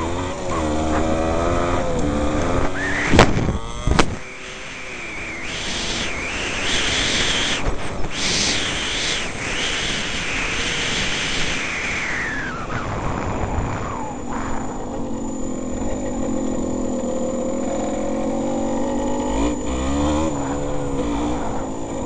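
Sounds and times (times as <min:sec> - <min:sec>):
motorcycle engine revving: 0:00.0 - 0:22.0
wind rushing over microphone: 0:01.0 - 0:15.6.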